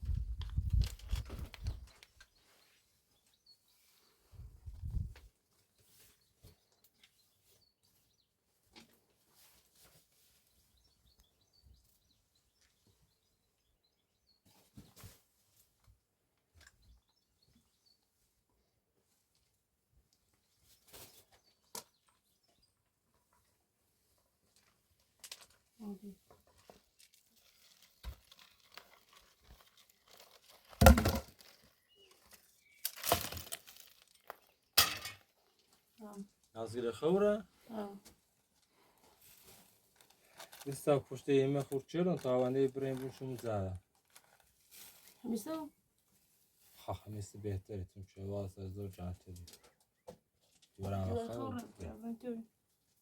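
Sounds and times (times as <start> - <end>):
crumpling and rustling: 0.2 - 2.4, 24.4 - 34.7, 38.6 - 40.9, 41.6 - 45.5
faint crackles: 24.5 - 34.6.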